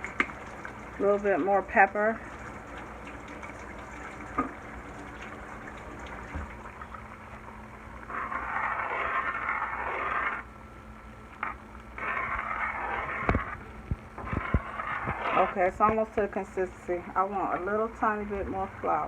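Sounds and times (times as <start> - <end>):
gravy simmering in a pan: 0.0 - 10.5, 11.4 - 15.7
utensil scraping a pan: 8.0 - 10.5, 11.4 - 13.6, 14.2 - 17.7.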